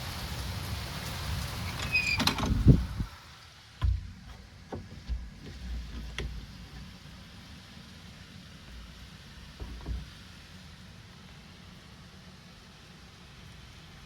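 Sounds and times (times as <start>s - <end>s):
rain hiss: 0.0s - 14.0s
door squeaking: 1.6s - 3.0s
door shutting clunk: 1.8s - 3.1s, 3.8s - 6.9s, 9.6s - 10.2s
light knocks: 3.8s - 6.9s, 9.5s - 10.2s.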